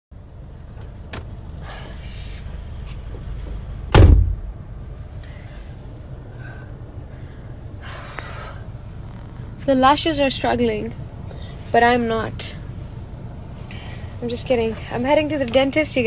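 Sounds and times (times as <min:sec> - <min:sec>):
low rumble: 0:00.2 - 0:14.3
loud heavy thump: 0:03.1 - 0:04.6.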